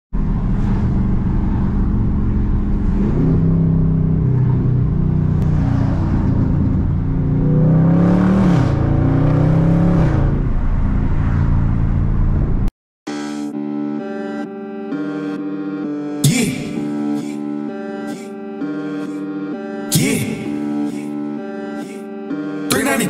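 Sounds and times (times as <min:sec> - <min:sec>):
car engine accelerating: 0:00.2 - 0:12.7.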